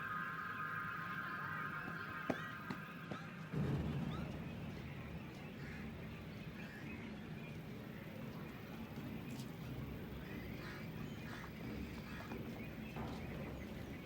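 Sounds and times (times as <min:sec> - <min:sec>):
low background rumble: 0:03.5 - 0:14.0.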